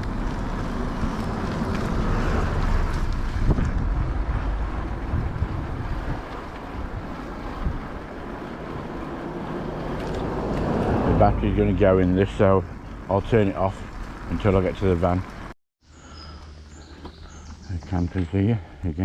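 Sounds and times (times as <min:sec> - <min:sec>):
wind buffeting microphone: 0:00.0 - 0:15.2.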